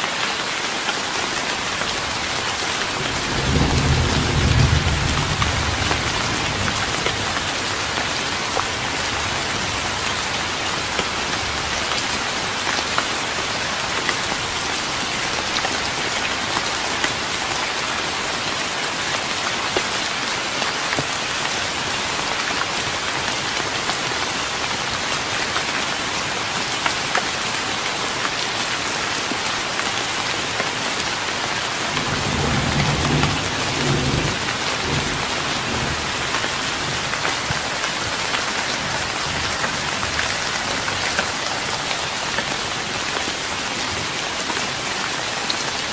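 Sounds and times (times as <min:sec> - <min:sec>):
rain on a wooden deck: 0:00.0 - 0:45.9
thunder rumbling: 0:03.0 - 0:07.4, 0:32.0 - 0:37.7.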